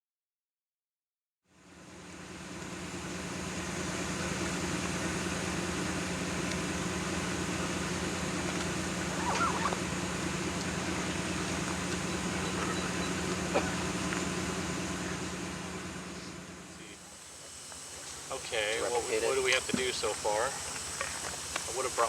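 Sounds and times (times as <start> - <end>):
locomotive hum: 1.5 - 22.0
constant hiss: 1.6 - 22.0.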